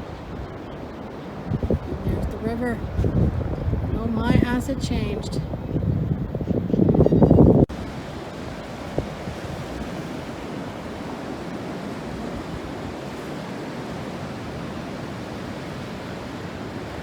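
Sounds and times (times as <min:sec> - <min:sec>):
ocean surf washing on shore: 0:00.0 - 0:06.7, 0:07.4 - 0:17.0.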